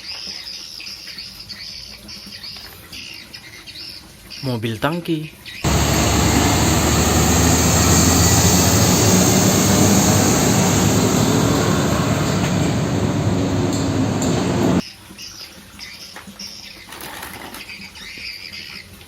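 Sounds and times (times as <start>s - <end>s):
vehicle engine rumble with hiss: 5.7s - 14.8s.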